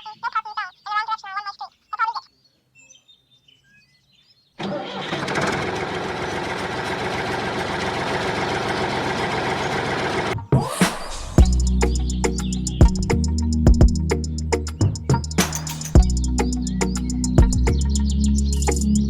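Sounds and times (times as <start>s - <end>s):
birds chirping: 0.0s - 5.0s, 9.4s - 19.0s
small engine running: 4.6s - 10.4s.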